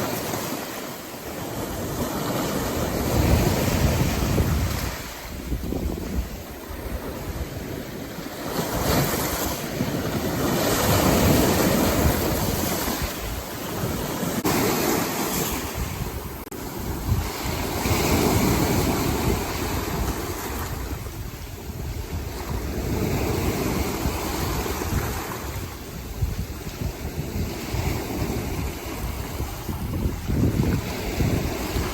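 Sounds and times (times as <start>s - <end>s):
waves surging and breaking: 0.0s - 31.9s
wind buffeting microphone: 0.0s - 31.9s.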